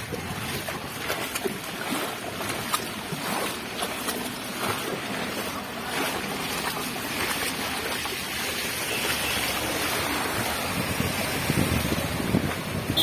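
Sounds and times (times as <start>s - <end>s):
wind and rain rushing: 6.8s - 13.0s
low rumbling gusts: 10.2s - 13.0s
wind buffeting microphone: 10.2s - 13.0s.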